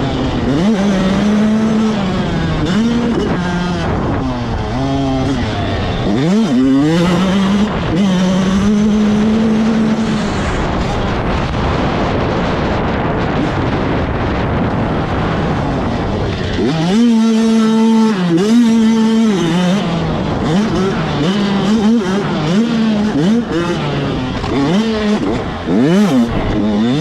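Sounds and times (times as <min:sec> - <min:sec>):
motocross bike engines revving: 0:00.0 - 0:27.0
rushing noise: 0:25.4 - 0:27.0.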